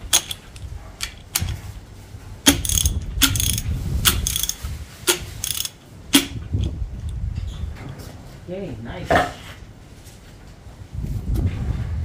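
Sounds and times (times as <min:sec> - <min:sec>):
ratchet wrench clicking: 0:00.0 - 0:01.6, 0:02.4 - 0:06.8.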